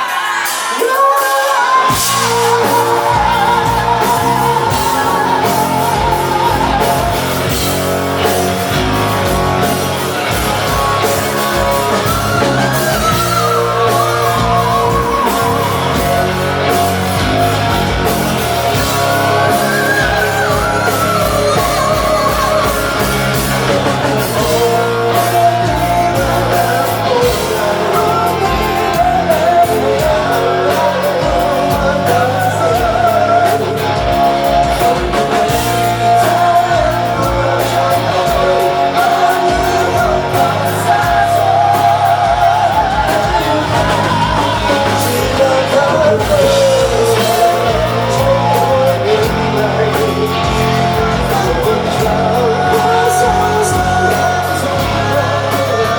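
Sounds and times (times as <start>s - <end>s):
live rock band playing: 0.0s - 55.9s
wavering lead melody: 1.9s - 55.9s.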